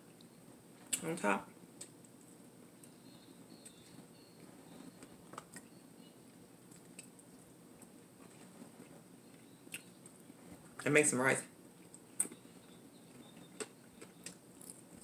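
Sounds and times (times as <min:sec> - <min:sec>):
faint chewing: 0:01.8 - 0:05.7, 0:06.6 - 0:10.8, 0:11.6 - 0:15.0.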